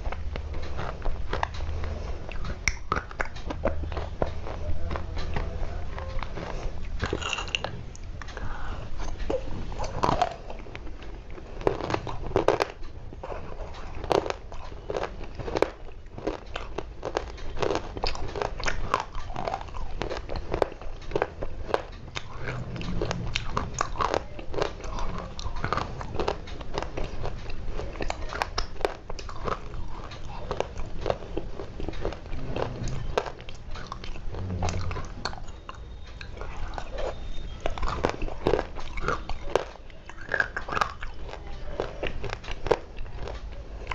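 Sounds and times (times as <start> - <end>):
dry clay being chewed: 0.0 - 43.9.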